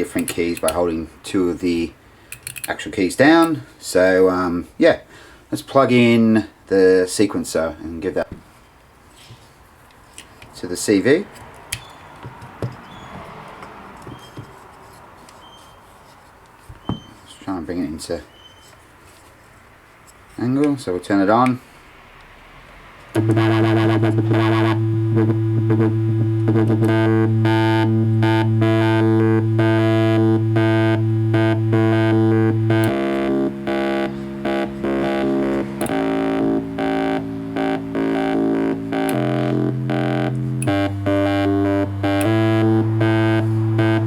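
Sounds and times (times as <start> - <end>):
buzzy sustained synth bass note: 23.2 - 44.0
fast repeating synth notes: 23.2 - 44.0.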